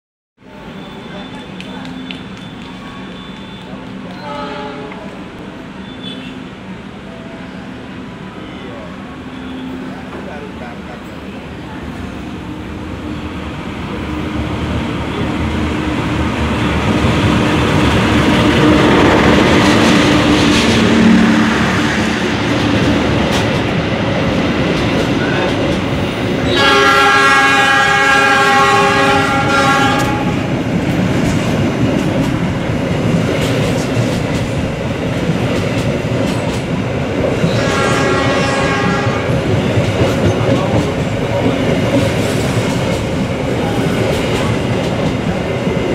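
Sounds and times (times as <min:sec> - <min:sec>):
diesel locomotive engine: 0:00.4 - 0:45.9
train wheels clacking on rails: 0:00.6 - 0:06.3, 0:15.0 - 0:45.9
train horn: 0:04.1 - 0:05.2, 0:26.4 - 0:30.6, 0:37.4 - 0:39.5.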